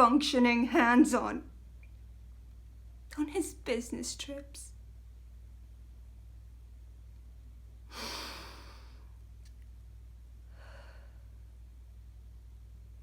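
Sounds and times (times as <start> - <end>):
woman sighing: 7.9 - 8.9
soft breath: 7.9 - 9.2, 10.4 - 11.6.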